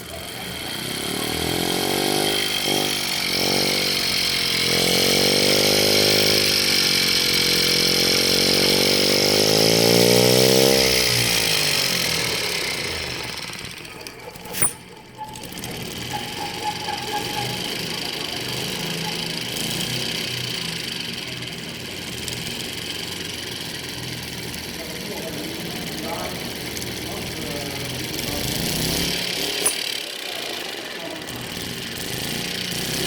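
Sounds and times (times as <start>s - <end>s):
small model engine running: 0.0s - 33.0s
sharp click: 14.0s - 15.3s, 29.6s - 30.0s.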